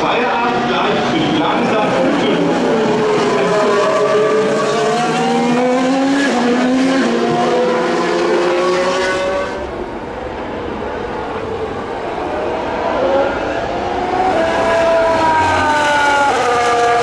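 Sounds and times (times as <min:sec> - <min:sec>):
race car engines at high revs: 0:00.0 - 0:09.8, 0:12.4 - 0:17.0.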